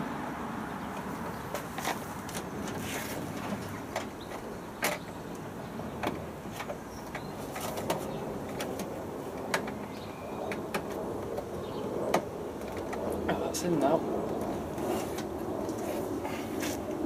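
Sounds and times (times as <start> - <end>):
steady background noise: 0.0 - 17.0
sharp clicks and light knocks: 0.9 - 11.5, 12.1 - 13.5.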